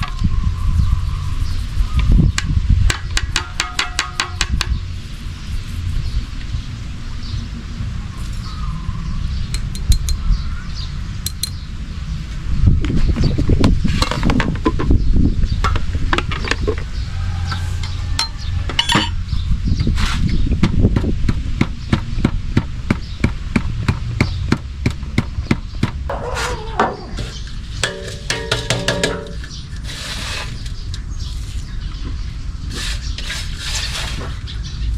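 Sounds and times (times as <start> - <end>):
tool striking hard knocks: 27.8 - 29.5.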